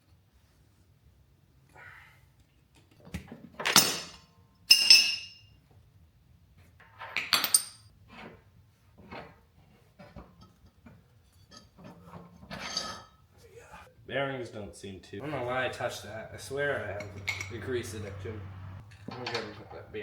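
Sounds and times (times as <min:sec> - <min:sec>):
metal parts clinking: 0:04.7 - 0:05.4, 0:17.0 - 0:18.0
light metal taps: 0:16.9 - 0:19.4.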